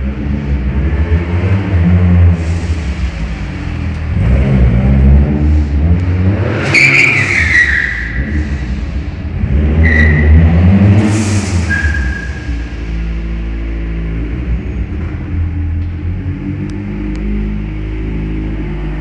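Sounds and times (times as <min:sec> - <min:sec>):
car engine revving: 0:00.0 - 0:19.0
tyre squealing: 0:06.6 - 0:08.7, 0:09.8 - 0:10.6, 0:11.6 - 0:12.7.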